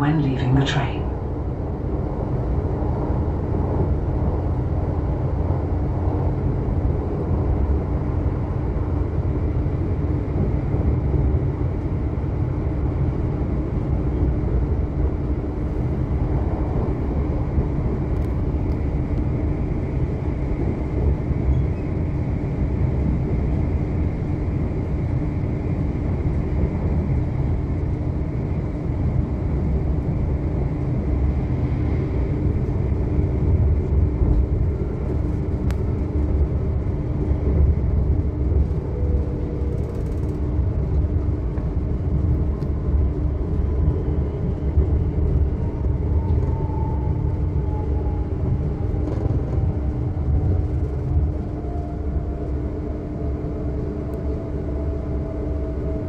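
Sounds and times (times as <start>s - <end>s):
train low rumble: 0.0s - 56.0s.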